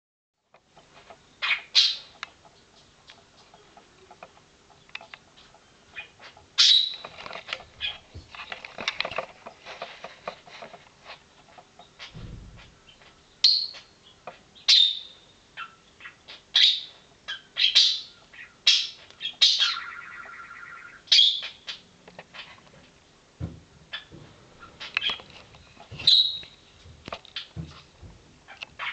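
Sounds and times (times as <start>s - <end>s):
bird chirping: 1.2s - 8.2s, 11.8s - 22.5s, 23.9s - 26.7s
rapid bird trill: 5.9s - 7.1s, 14.7s - 21.8s, 26.0s - 26.6s.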